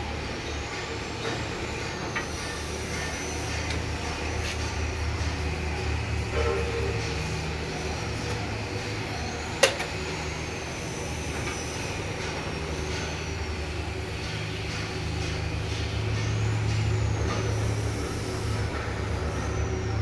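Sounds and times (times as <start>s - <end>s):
heavy engine humming: 0.0s - 20.0s.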